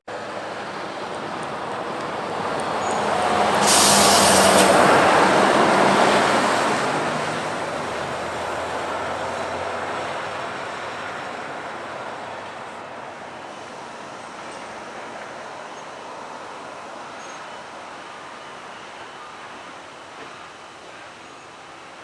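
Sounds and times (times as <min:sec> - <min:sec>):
truck passing by: 0:00.1 - 0:17.0
brief sharp hiss: 0:03.4 - 0:05.4.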